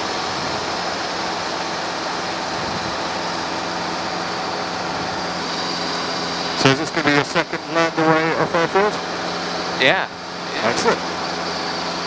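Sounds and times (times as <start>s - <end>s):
helicopter engine and rotor drone: 0.0s - 12.0s
faint hum tones: 4.3s - 12.0s.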